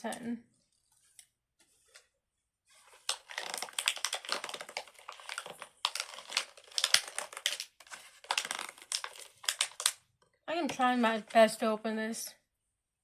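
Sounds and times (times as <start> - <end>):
plastic packaging crinkling: 2.8 - 10.0.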